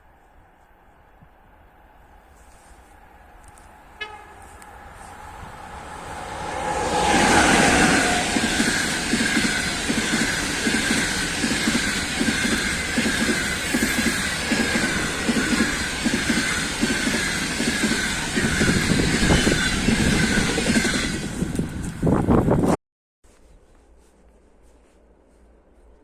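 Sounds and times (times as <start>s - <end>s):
train rumble: 0.0s - 22.8s
train wheels clickety-clack: 3.5s - 22.7s.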